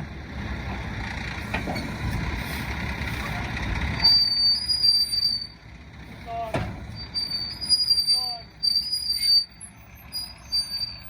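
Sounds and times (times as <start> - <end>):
truck engine rumbling: 0.0 - 11.0
high steady squeal: 7.0 - 11.0.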